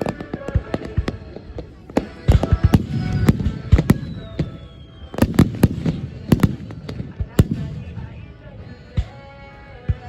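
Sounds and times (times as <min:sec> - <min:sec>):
fireworks bursting: 0:00.0 - 0:10.0
music playing: 0:00.0 - 0:10.0.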